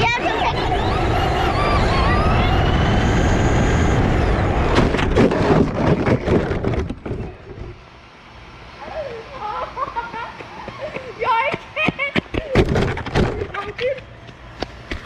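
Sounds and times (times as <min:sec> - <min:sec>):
rc car driving on pavement: 0:00.0 - 0:07.9.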